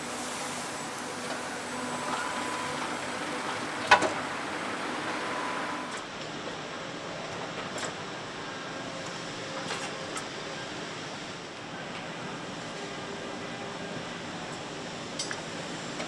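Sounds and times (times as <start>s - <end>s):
faint machine whines: 0.0s - 6.1s
machinery hum and hiss: 0.0s - 16.0s.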